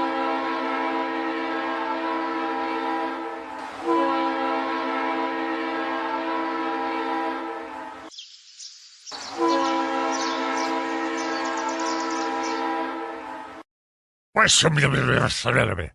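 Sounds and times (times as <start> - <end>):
train horn blasts: 0.0 - 8.1, 9.2 - 13.6.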